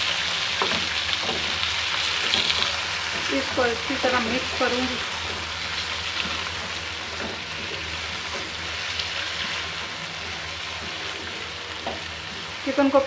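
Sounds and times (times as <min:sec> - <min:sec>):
chicken and onions sizzling in oil: 0:00.0 - 0:13.0
spatula tapping and scraping pan: 0:00.6 - 0:01.6.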